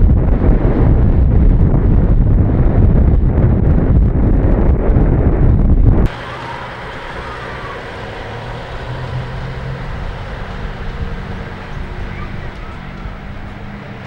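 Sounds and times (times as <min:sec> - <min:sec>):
wind buffeting microphone: 0:00.0 - 0:14.0
diesel truck engine running: 0:06.0 - 0:14.0.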